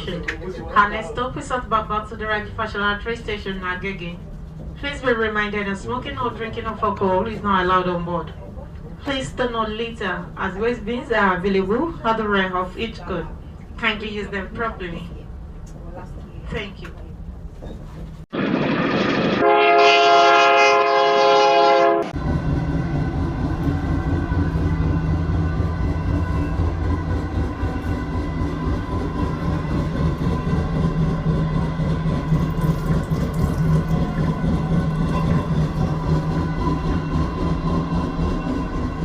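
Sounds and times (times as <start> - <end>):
moving train running noise: 0.0 - 39.0
train horn blast: 19.1 - 22.2.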